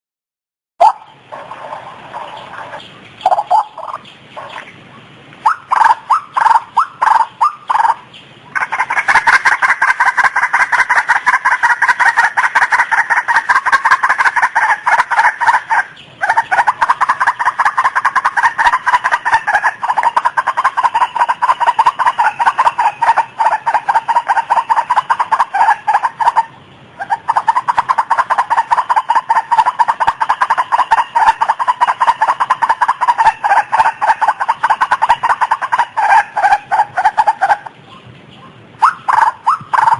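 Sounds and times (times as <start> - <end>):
bird calling harsh notes: 0.8 - 39.9.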